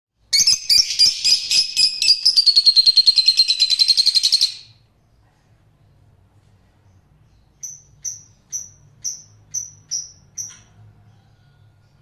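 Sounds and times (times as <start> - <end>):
cage bird chirping and trilling: 0.2 - 5.2, 6.7 - 12.0.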